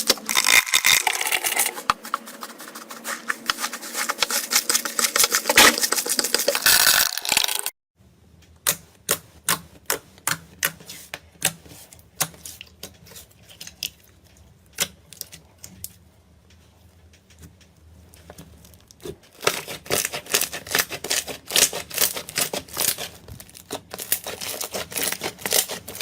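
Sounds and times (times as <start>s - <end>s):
slime crackling: 0.0s - 7.7s, 19.4s - 26.0s.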